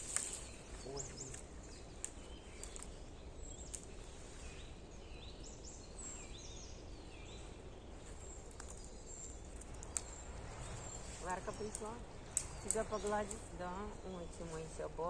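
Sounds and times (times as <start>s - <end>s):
bird chirping: 0.0s - 15.0s
low rumble: 7.5s - 14.4s.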